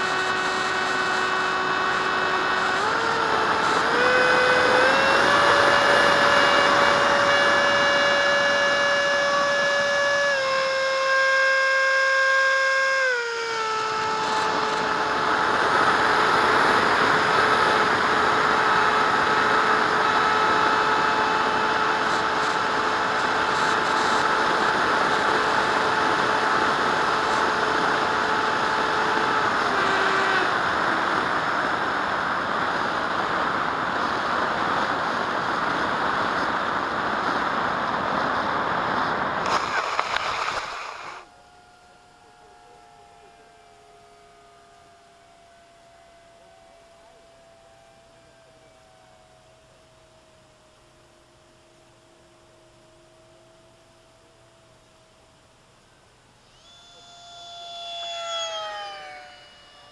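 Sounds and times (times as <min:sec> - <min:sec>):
jet fan whine: 0:00.0 - 0:59.9
rush of air: 0:13.9 - 0:41.3.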